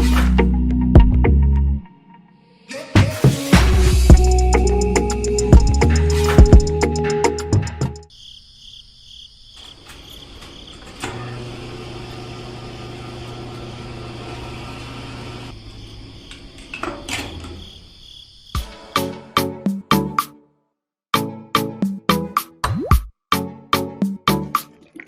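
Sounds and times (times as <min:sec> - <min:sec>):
small electric motor humming: 0:11.1 - 0:15.5.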